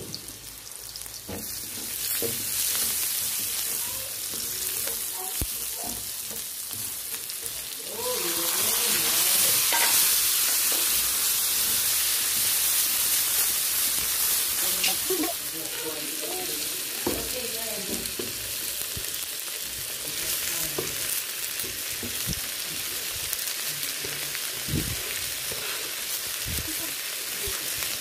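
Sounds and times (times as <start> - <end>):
onion and garlic sizzling in oil: 0.0 - 28.0
spatula scraping and tapping pan: 1.3 - 7.7, 9.6 - 11.0.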